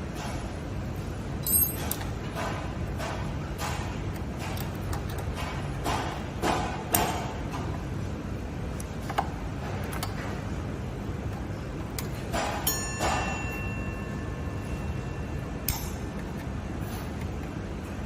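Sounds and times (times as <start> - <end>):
steady low hum: 0.0 - 18.0
metal tools clicking and clinking: 1.4 - 3.2.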